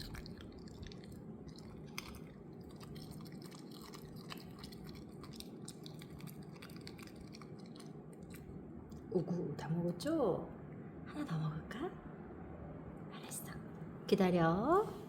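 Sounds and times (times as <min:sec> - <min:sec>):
dog crunching a raw carrot: 0:00.0 - 0:09.1.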